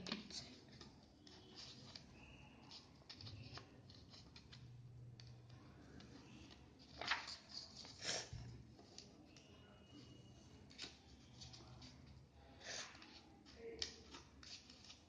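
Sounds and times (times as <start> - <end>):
paper rustling: 0.0 - 5.4, 6.0 - 12.1.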